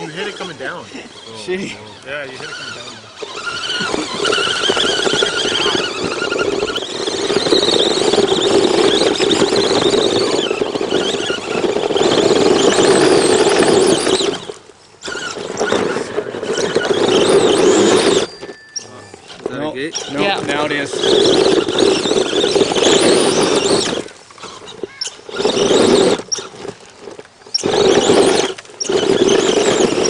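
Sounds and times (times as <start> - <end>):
toy truck motor whining: 0.0 - 30.0.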